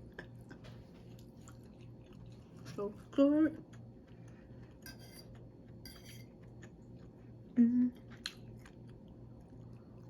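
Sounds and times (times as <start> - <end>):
person chewing food: 0.0 - 10.0
person humming mm: 7.6 - 8.0.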